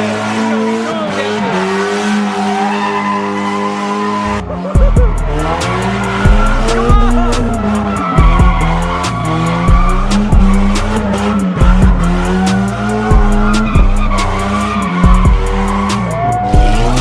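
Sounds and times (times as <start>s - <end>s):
car tyres squealing: 0.0s - 17.0s
music with heavy bass and beat: 4.1s - 17.0s.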